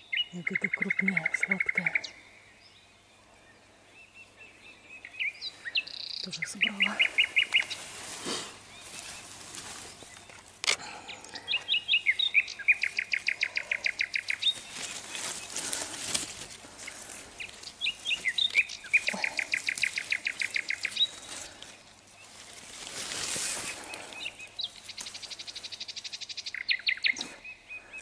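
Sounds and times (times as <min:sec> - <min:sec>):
songbird singing with trill: 0:00.0 - 0:07.8, 0:11.1 - 0:15.5, 0:17.4 - 0:21.3, 0:23.8 - 0:28.0
leaves rustling: 0:05.2 - 0:27.4.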